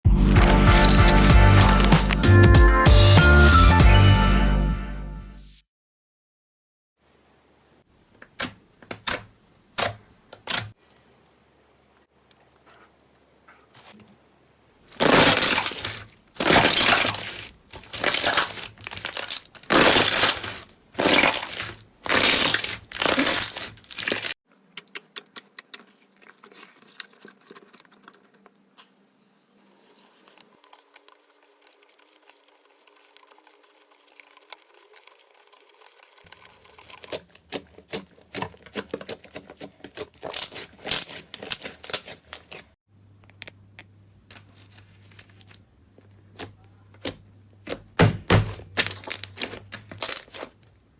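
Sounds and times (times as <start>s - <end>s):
slime crunching and squishing: 0.1s - 2.5s, 14.9s - 28.3s, 36.3s - 42.8s, 46.3s - 50.7s
slime popping: 15.0s - 24.3s.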